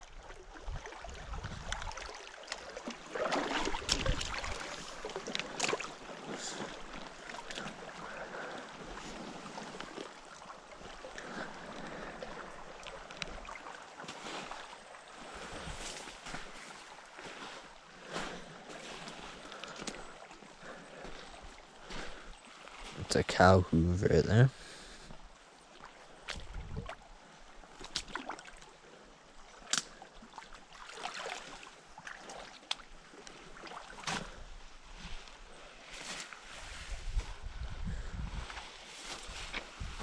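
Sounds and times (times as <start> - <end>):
footsteps crunching outdoors: 14.0 - 24.6, 35.0 - 40.0.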